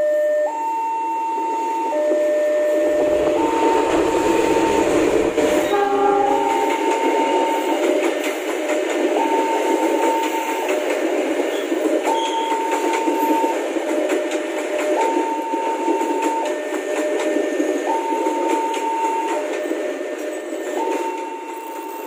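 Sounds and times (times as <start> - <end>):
level-crossing warning alarm: 0.0 - 8.2, 8.9 - 10.8, 14.9 - 22.0
train wheels on rails: 2.1 - 22.0.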